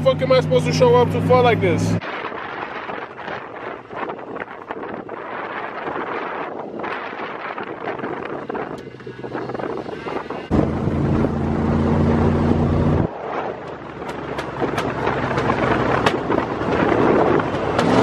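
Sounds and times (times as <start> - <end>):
rushing noise: 9.2 - 18.0.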